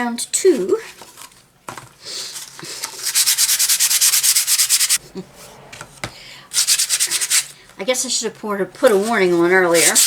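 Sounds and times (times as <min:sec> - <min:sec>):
sandpaper rubbing on wood: 0:02.9 - 0:05.0, 0:06.6 - 0:07.5, 0:09.1 - 0:10.0.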